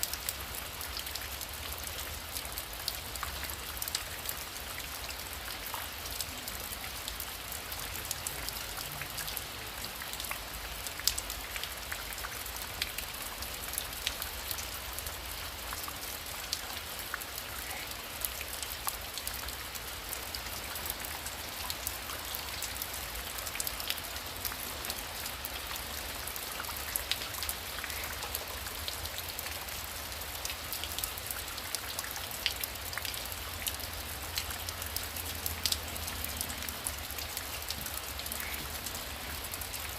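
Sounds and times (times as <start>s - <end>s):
heavy rain falling: 0.0s - 39.9s
raindrops tapping on a surface: 32.4s - 39.7s.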